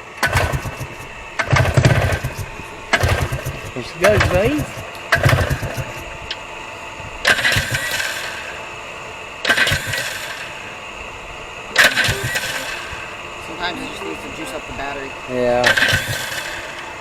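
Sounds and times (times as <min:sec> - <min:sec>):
two-stroke engine firing: 0:00.0 - 0:06.3, 0:07.2 - 0:08.8, 0:09.4 - 0:10.8, 0:11.8 - 0:13.2, 0:15.6 - 0:16.9.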